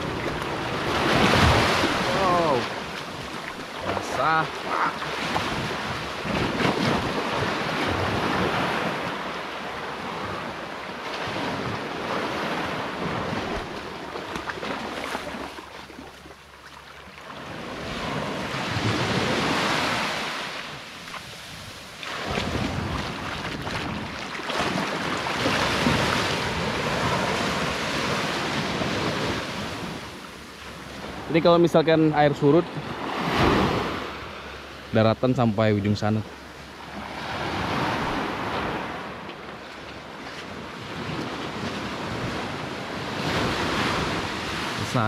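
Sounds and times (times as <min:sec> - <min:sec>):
waves washing onto shore: 0:00.0 - 0:45.0
wind buffeting microphone: 0:21.4 - 0:31.3.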